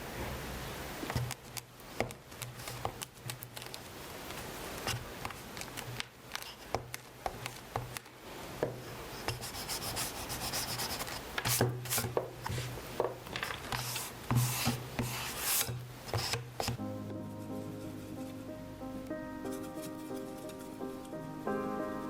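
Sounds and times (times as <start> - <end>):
art tools rubbing on paper: 9.1 - 12.8, 13.7 - 16.8.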